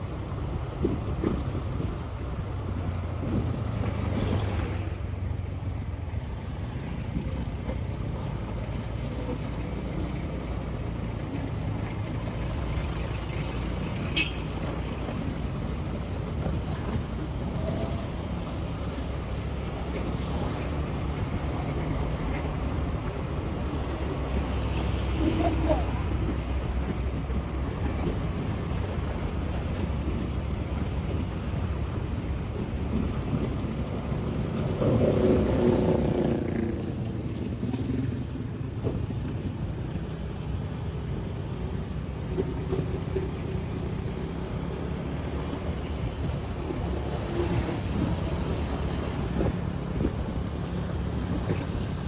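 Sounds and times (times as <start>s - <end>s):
wind buffeting microphone: 15.0s - 52.0s.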